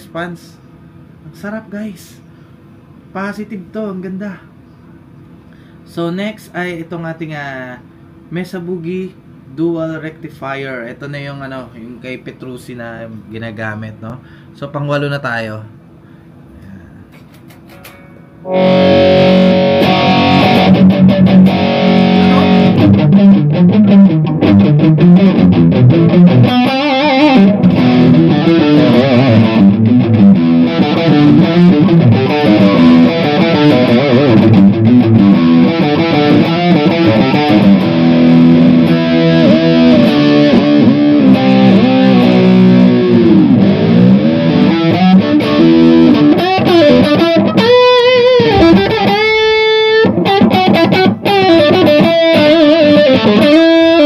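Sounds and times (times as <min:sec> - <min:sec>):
distorted electric guitar riffing: 0:17.5 - 0:54.0.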